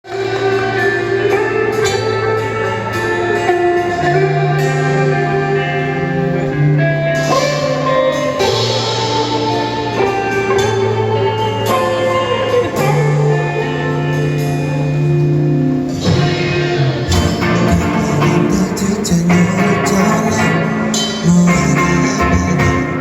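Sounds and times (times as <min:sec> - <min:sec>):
bass notes: 0:00.0 - 0:23.0
drum kit: 0:00.0 - 0:23.0
guitar chords: 0:00.0 - 0:23.0.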